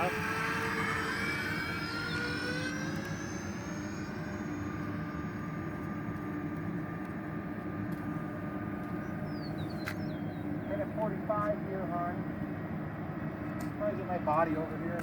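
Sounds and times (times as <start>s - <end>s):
electric ducted fans whining: 0.0s - 15.0s.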